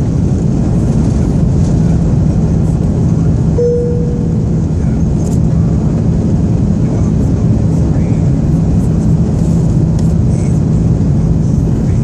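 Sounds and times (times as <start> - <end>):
airliner cabin engine rush: 0.0 - 12.0
short tone: 3.6 - 4.6.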